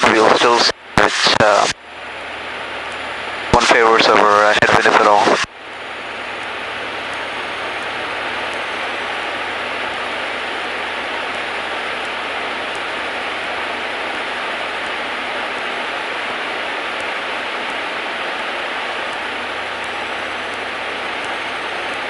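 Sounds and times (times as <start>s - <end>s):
faint constant whine: 0.0s - 22.0s
light aircraft engine and propeller: 0.0s - 22.0s.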